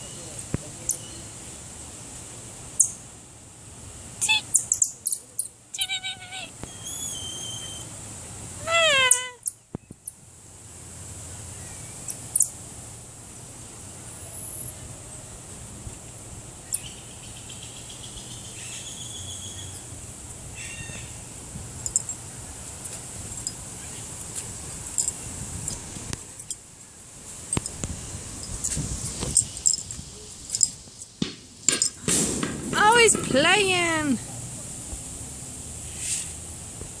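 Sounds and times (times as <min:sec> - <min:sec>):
high-pitched animal chirps: 0:04.3 - 0:07.9, 0:08.6 - 0:09.6
steady background hum: 0:07.8 - 0:34.7.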